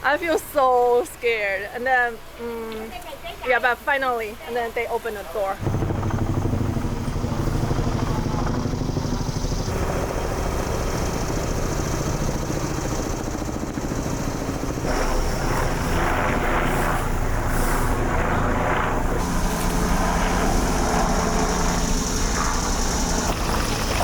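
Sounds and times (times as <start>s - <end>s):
motor humming: 5.6s - 24.0s.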